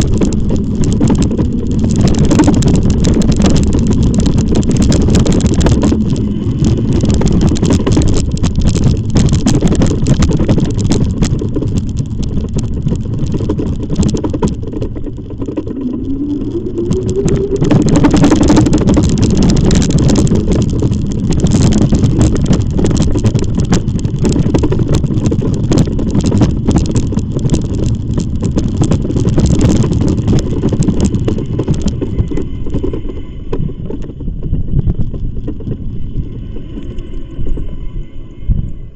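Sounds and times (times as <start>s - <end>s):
tyre and road noise: 0.0s - 38.9s
wind buffeting microphone: 0.0s - 38.9s
short rising whine: 15.3s - 20.4s, 35.5s - 38.9s.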